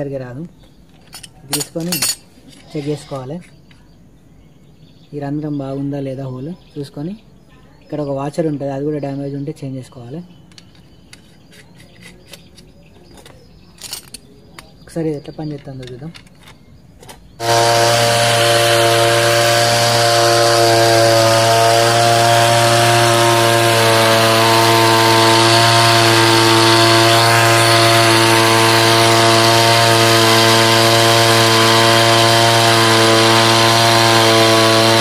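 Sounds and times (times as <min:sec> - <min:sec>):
power sprayer engine running: 0:17.4 - 0:35.0.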